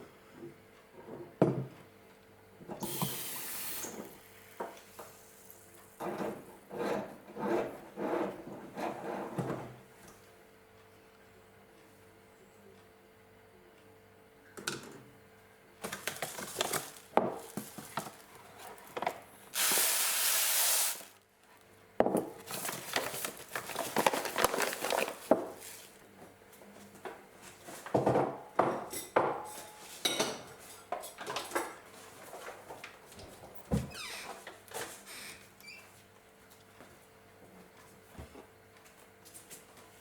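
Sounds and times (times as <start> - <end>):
rushing hiss: 19.6 - 21.1.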